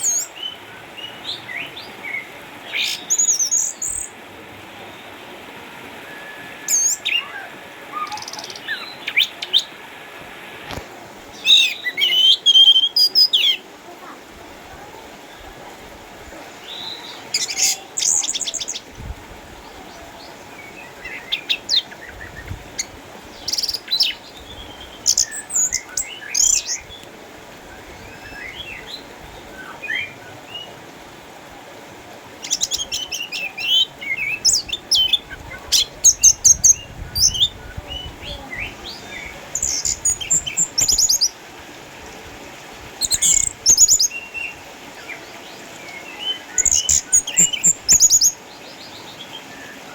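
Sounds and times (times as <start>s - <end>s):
soft bird twittering: 32.4s - 41.4s, 43.0s - 49.9s.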